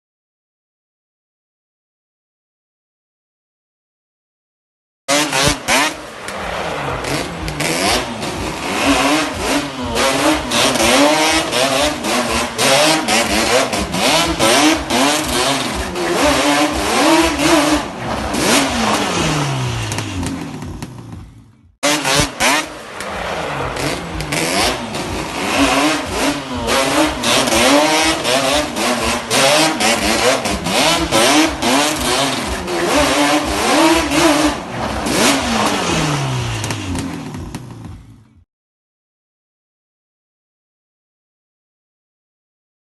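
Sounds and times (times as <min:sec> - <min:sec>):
quad bike engine revving: 0:05.1 - 0:38.4.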